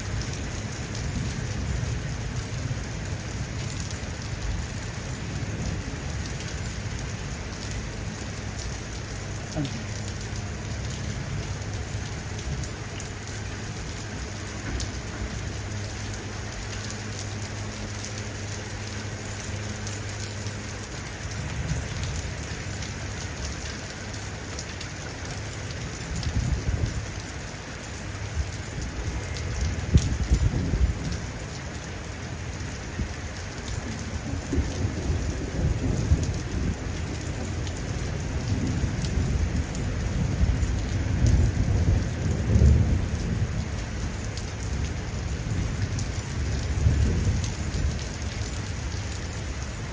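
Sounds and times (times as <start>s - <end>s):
heavy rain falling: 0.0s - 49.9s
distant thunder rumbling: 33.8s - 48.2s.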